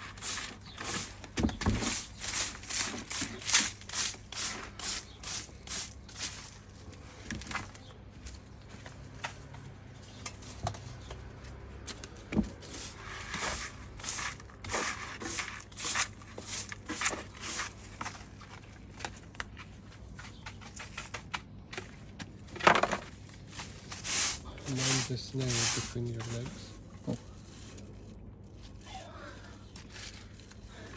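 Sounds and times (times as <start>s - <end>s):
brush sweeping debris into dustpan: 0.0s - 6.8s, 12.5s - 18.3s, 23.0s - 26.8s.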